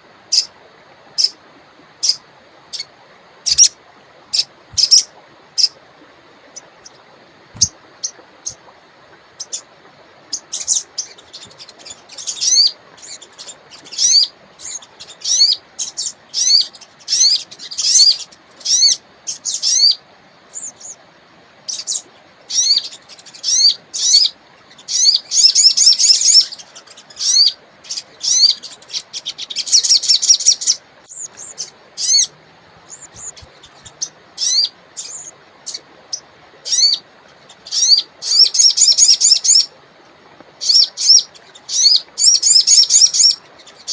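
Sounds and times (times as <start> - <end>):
running water hiss: 0.0 - 43.9
songbird chirping and trilling: 3.5 - 5.8, 10.3 - 21.0, 21.7 - 39.8, 40.6 - 43.9.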